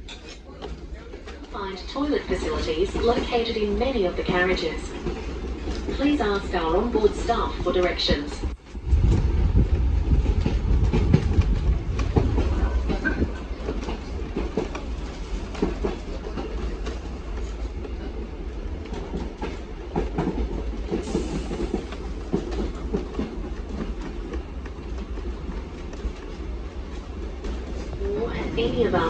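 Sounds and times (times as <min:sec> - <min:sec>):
train rumbling on track: 0:00.0 - 0:29.0.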